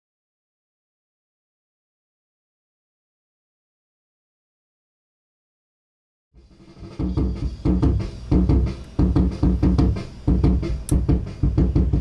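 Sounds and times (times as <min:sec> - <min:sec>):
drum kit playing a beat: 0:06.4 - 0:12.0.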